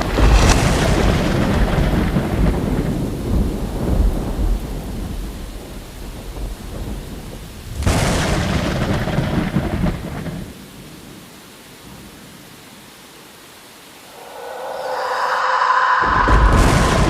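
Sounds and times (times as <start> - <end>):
thunder rumbling: 0.0 - 10.5, 14.0 - 17.0
sharp thunder crack: 16.0 - 17.0.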